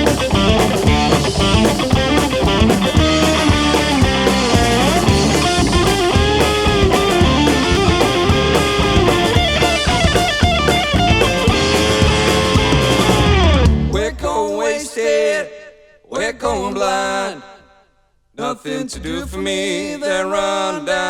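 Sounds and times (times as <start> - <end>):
electric guitar lines: 0.0 - 14.0
drum kit: 0.0 - 14.1
bass guitar: 0.0 - 14.4.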